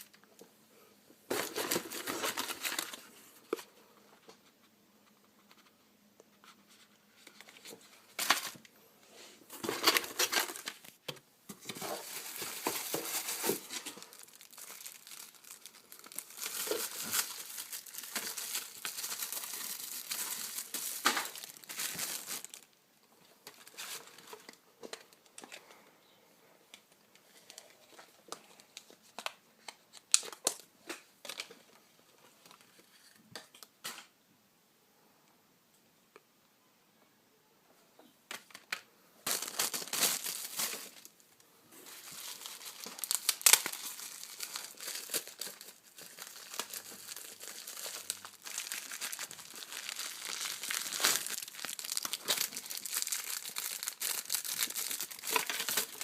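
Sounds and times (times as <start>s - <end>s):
packaging crinkling and tearing: 1.3s - 3.2s, 9.6s - 11.0s, 11.6s - 22.7s, 39.2s - 41.1s, 41.8s - 56.0s.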